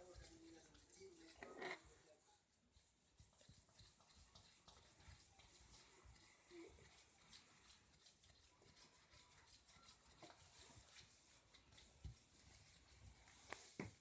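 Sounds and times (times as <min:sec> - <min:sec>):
parrot tapping and scratching: 0:03.1 - 0:13.9.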